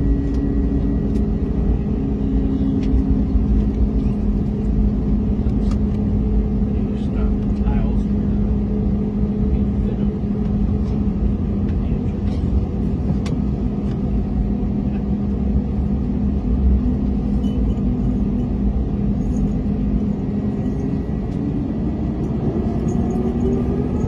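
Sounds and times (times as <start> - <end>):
jet engine hum in cabin: 0.0 - 24.0
engine whine rising in pitch: 13.5 - 24.0.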